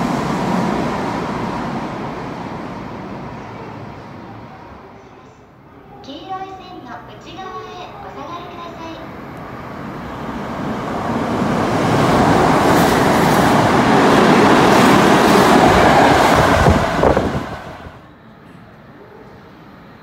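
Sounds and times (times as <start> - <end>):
train wheels rushing on rails: 0.0 - 4.4, 9.4 - 18.7.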